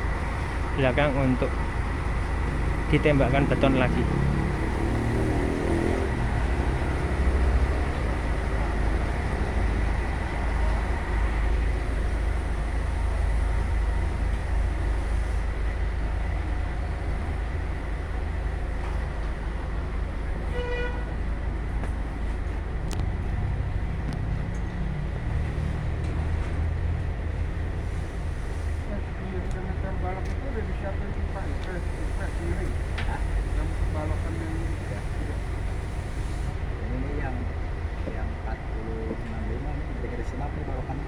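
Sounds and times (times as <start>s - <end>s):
diesel truck engines rumbling: 0.0s - 41.0s.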